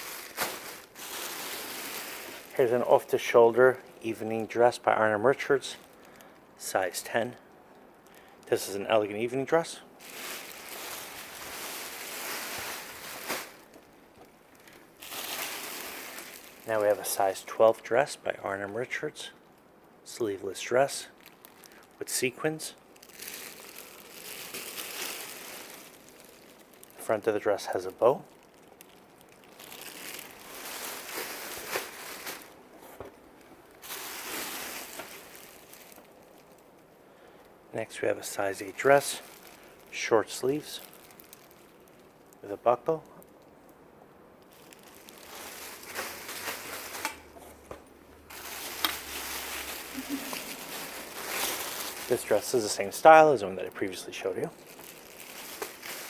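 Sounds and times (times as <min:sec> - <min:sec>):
dress rustling: 0:00.0 - 0:03.1, 0:10.0 - 0:14.0, 0:14.6 - 0:16.9, 0:23.0 - 0:27.0, 0:29.2 - 0:36.6, 0:44.5 - 0:47.6, 0:48.2 - 0:52.8, 0:54.6 - 0:56.0.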